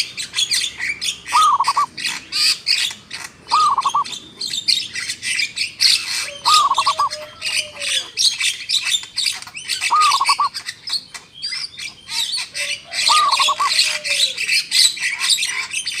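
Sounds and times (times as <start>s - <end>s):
many birds chirping: 0.0s - 16.0s
bird call with falling whistle: 1.3s - 1.9s, 3.5s - 4.1s, 6.3s - 8.1s, 9.8s - 10.6s, 13.0s - 14.4s.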